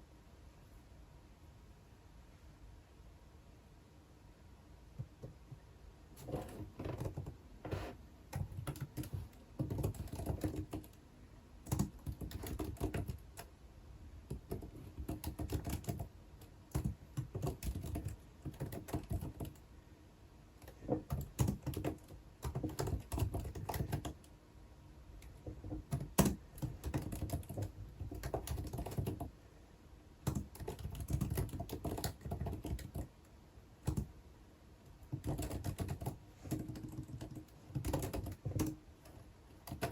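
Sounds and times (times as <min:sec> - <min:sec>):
computer keyboard typing: 0:06.2 - 0:11.0, 0:11.6 - 0:13.5, 0:14.3 - 0:19.6, 0:20.6 - 0:24.3, 0:25.2 - 0:29.3, 0:30.2 - 0:33.2, 0:33.8 - 0:34.1, 0:35.0 - 0:39.9.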